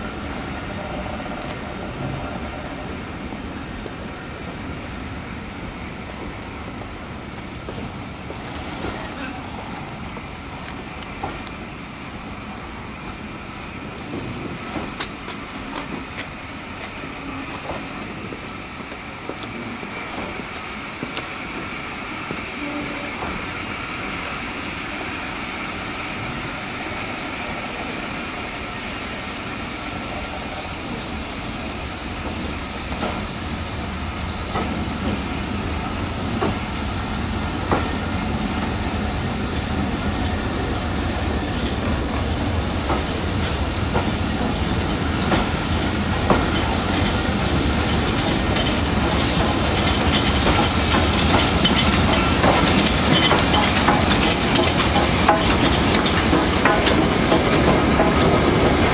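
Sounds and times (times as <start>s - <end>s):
wheels clicking over rail joints: 42.8s - 58.9s.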